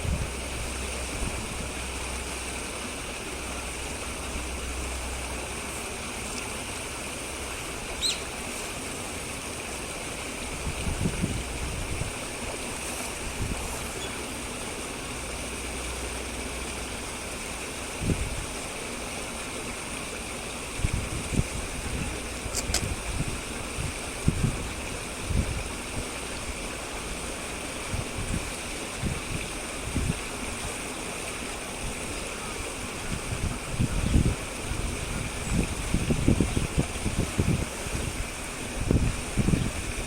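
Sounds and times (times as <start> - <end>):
wind rumble on microphone: 0.0 - 2.1, 10.4 - 14.2, 17.9 - 18.6, 20.7 - 30.8, 31.8 - 40.0
short high bird call: 8.0 - 8.2.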